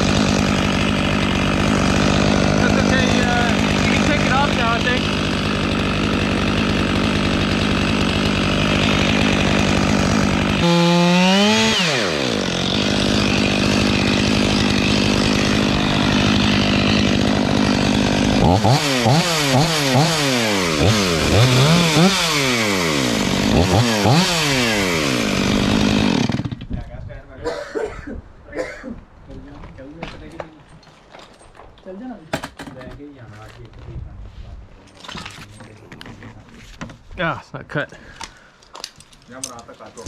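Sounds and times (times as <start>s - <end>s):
chainsaw cutting wood and revving: 0.0s - 26.7s.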